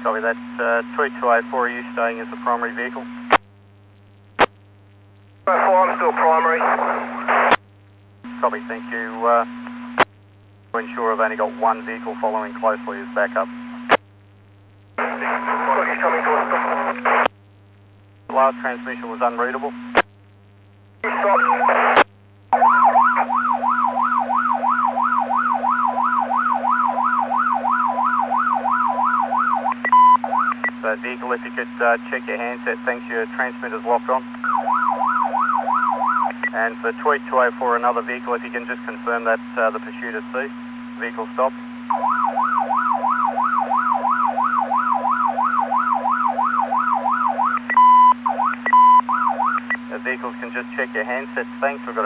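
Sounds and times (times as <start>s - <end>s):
radio hum: 0.0s - 52.0s
police siren yelp over radio: 21.1s - 22.0s, 22.6s - 30.6s, 34.5s - 36.4s, 41.9s - 47.7s, 48.3s - 49.6s
steady beep tone: 29.0s - 30.8s, 47.4s - 49.8s.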